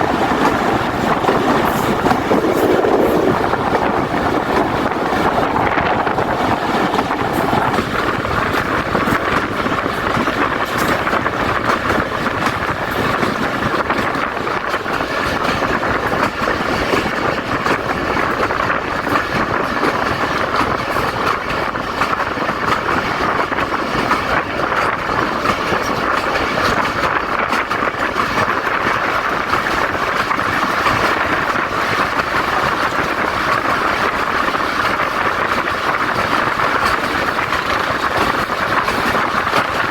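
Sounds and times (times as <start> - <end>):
train carriages rumbling and rattling: 0.0 - 39.9.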